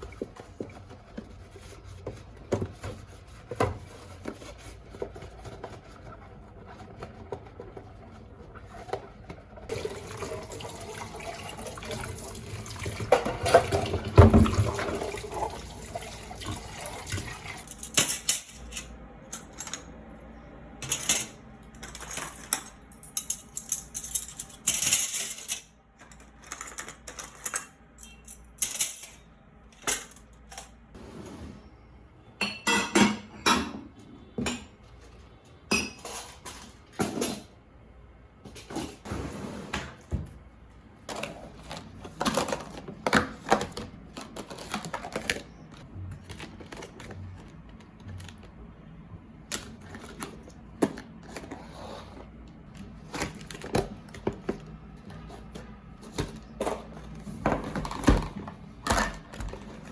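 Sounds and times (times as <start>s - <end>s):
clinks and knocks of items: 20.8s - 30.7s.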